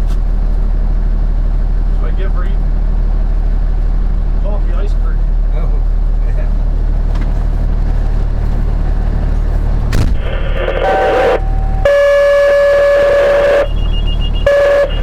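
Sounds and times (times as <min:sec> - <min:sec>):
low steady rumble: 0:00.0 - 0:15.0
radio click: 0:10.0 - 0:15.0
radio hiss: 0:10.2 - 0:15.0
two-tone radio page: 0:10.2 - 0:15.0.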